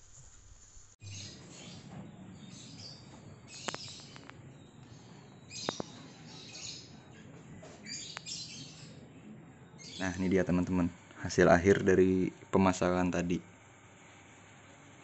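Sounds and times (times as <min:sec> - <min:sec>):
birds chirping: 0:01.0 - 0:13.4
sharp clicks: 0:03.6 - 0:04.4.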